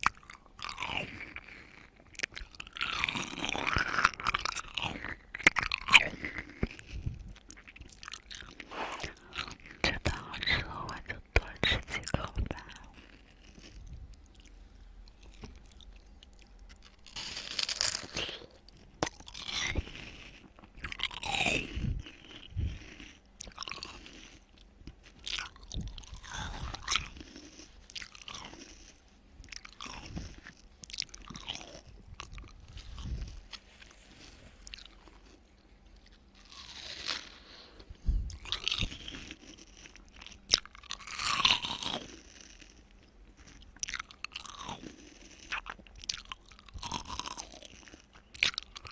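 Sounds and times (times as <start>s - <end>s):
chewing and crunching watermelon: 0.0s - 48.9s
wet mouth sounds: 15.2s - 35.4s.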